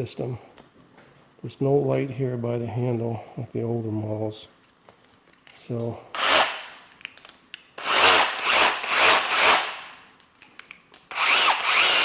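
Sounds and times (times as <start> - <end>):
rotary hammer drill bursts: 6.2 - 6.8, 7.8 - 10.0, 11.1 - 12.0.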